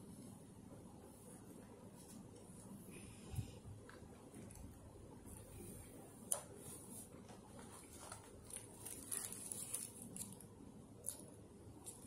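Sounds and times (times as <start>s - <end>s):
paper wrapper crinkling: 7.7s - 11.2s.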